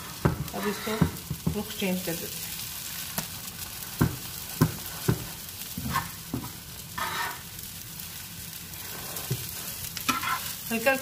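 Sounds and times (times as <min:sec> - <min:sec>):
spatula scraping pan: 0:00.0 - 0:01.7, 0:04.7 - 0:07.5, 0:08.8 - 0:10.8
food sizzling in a frying pan: 0:00.0 - 0:11.0
metal spatula knocking on pan: 0:00.2 - 0:01.7, 0:04.0 - 0:05.3.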